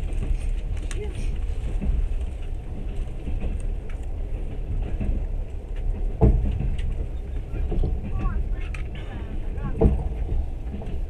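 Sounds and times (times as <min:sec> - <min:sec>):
train rumbling on track: 0:00.0 - 0:11.0.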